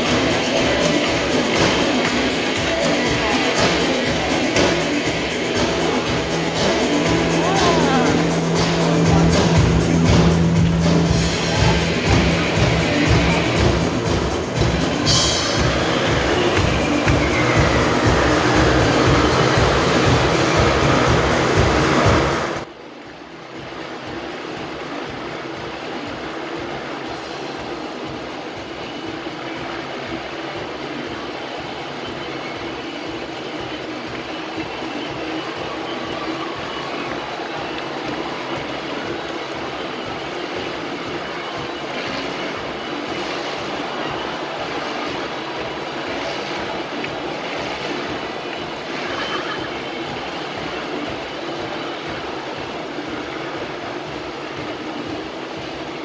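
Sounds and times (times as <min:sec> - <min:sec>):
motorcycle engine running hard: 0:00.0 - 0:22.6
motorcycle engines roaring: 0:00.0 - 0:22.7, 0:24.6 - 0:56.0.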